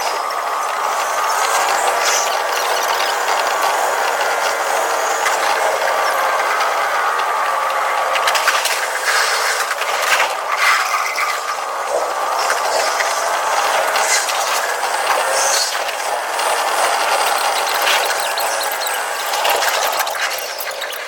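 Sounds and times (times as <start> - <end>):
train running noise: 0.0 - 21.0
wheels clicking over rails: 0.0 - 21.0.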